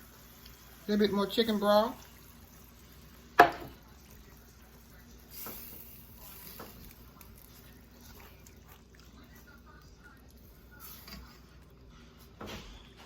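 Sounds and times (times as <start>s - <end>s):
liquid pouring into pan: 0.0s - 8.9s
kitchenware clinking against pan: 3.4s - 3.8s.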